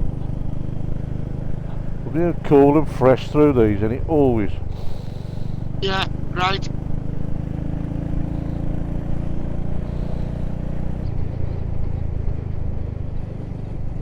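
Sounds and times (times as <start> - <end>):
motorcycle engine running: 0.0 - 14.0
wind and road noise: 4.0 - 14.0.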